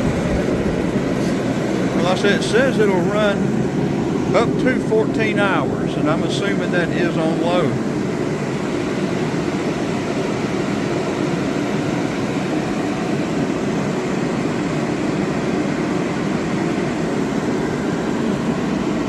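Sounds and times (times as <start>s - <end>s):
heaters roaring: 0.0s - 19.0s.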